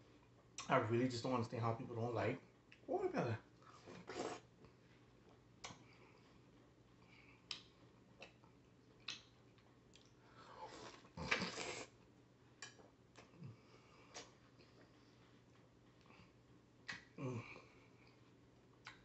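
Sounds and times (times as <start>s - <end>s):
chewing watermelon wet clicks: 4.1s - 11.9s, 12.6s - 17.2s, 17.9s - 19.0s.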